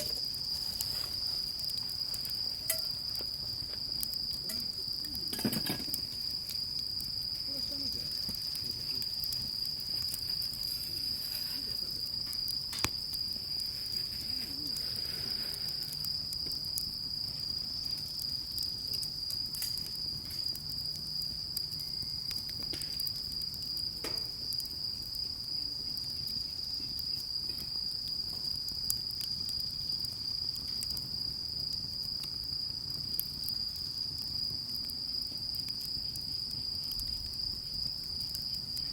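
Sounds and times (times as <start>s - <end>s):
insects chirring: 0.0s - 38.9s
faint clicks: 12.3s - 13.2s.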